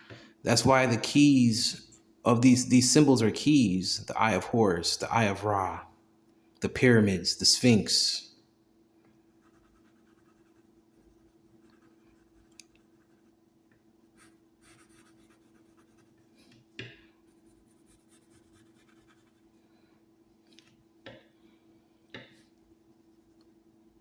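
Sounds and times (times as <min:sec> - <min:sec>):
faint room hum: 0:00.0 - 0:24.0.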